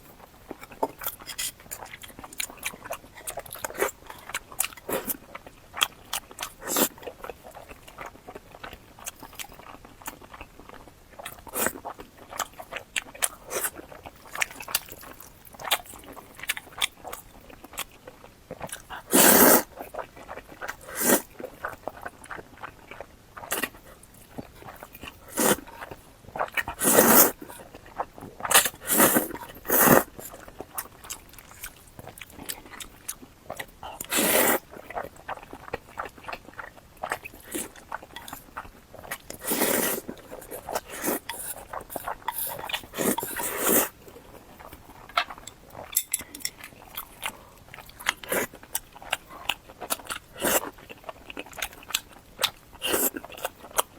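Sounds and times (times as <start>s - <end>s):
slurping: 19.1s - 19.7s, 20.8s - 21.2s, 25.1s - 25.9s, 26.6s - 27.6s, 28.4s - 30.4s, 34.1s - 34.6s, 39.0s - 44.0s.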